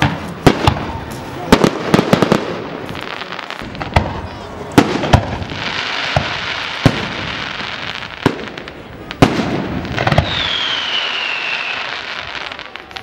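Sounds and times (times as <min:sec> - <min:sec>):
firework bangs: 0:00.0 - 0:13.0
falling whistle: 0:10.2 - 0:11.9.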